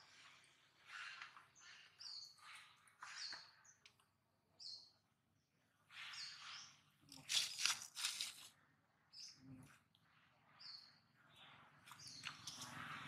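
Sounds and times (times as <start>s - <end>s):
birds chirping: 0.1s - 7.1s, 10.4s - 13.0s.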